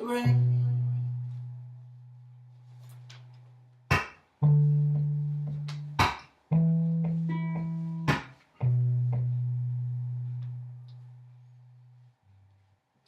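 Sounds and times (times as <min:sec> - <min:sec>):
guitar strums: 0:03.9 - 0:11.2.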